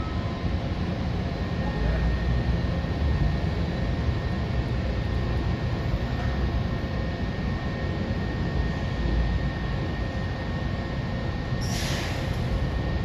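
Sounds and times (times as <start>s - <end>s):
faint high whine: 0.0s - 2.8s.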